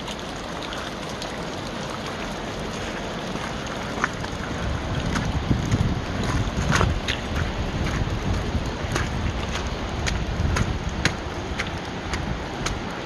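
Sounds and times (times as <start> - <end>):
waterfall rushing: 0.0 - 13.0
wind buffeting microphone: 3.9 - 13.0.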